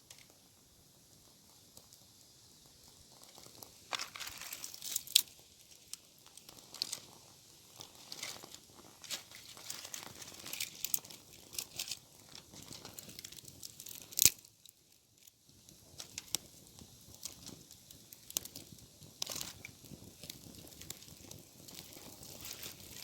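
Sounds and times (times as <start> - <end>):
dry leaves and twigs crackling: 3.3 - 15.4, 17.1 - 23.0.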